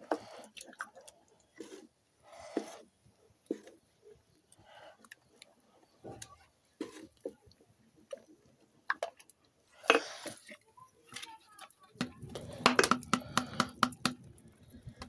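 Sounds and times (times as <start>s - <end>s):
thick porridge squelching: 0.0s - 15.0s
spoon scraping and knocking pot: 12.0s - 14.2s.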